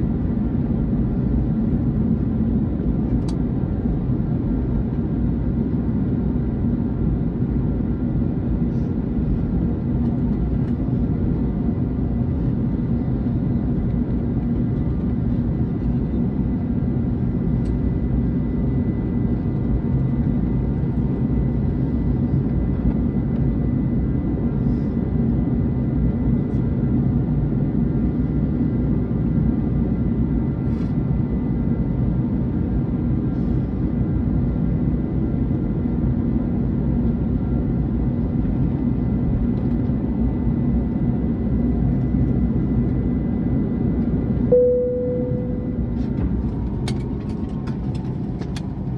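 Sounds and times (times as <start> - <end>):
thin steady whine: 44.5 - 48.4
jet engines idling: 44.5 - 48.9.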